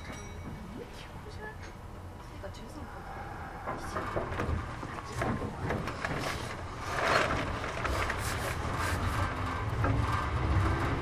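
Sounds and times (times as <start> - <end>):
train wheel clatter: 0.0 - 0.9, 3.1 - 11.0
train low rumble: 0.0 - 11.0.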